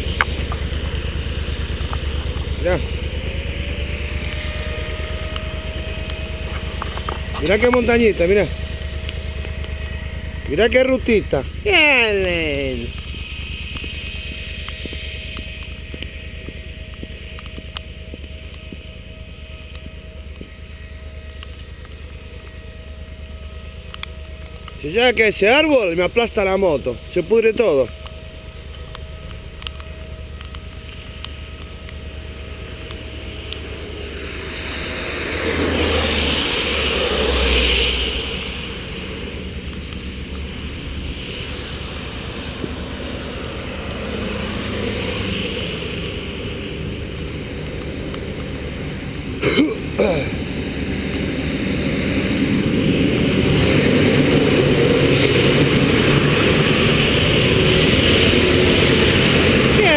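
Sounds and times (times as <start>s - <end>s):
motorcycle engine running: 0.0s - 59.9s
steady rush of noise: 0.0s - 59.9s
wind and road noise: 0.0s - 59.9s
light ticks: 27.9s - 32.0s.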